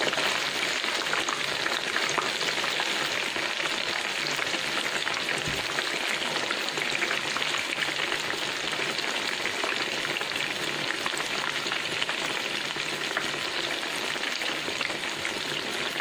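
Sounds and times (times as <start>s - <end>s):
chicken frying in hot oil: 0.0s - 16.0s.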